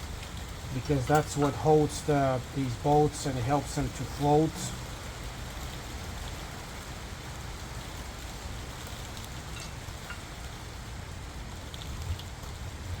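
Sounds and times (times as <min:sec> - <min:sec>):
background hiss and rumble: 0:00.0 - 0:13.0.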